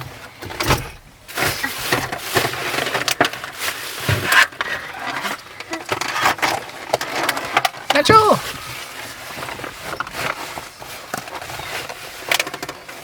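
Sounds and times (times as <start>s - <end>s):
crackly rustling of food: 0.0s - 13.0s.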